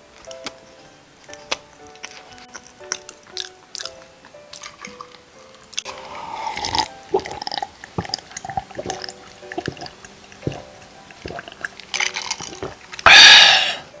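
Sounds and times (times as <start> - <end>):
wet chewing and swallowing: 4.6 - 13.8.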